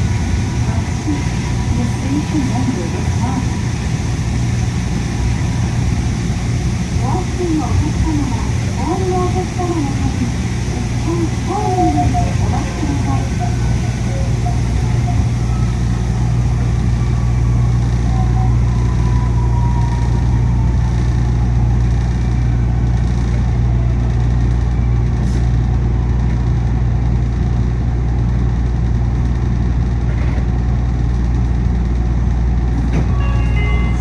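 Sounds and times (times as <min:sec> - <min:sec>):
faint whine sliding in pitch: 0:00.0 - 0:20.7
monorail car drone: 0:00.0 - 0:30.5, 0:32.2 - 0:34.0.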